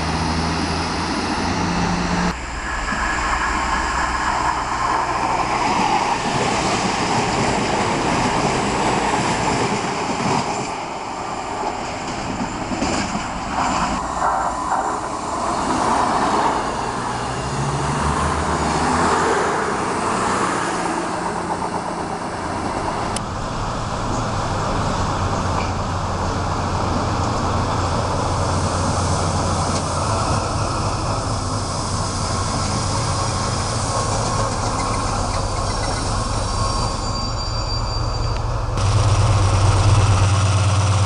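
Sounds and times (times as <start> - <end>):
train wheels rushing on rail: 0.0 - 41.0
diesel engines humming: 14.0 - 37.7, 38.4 - 41.0.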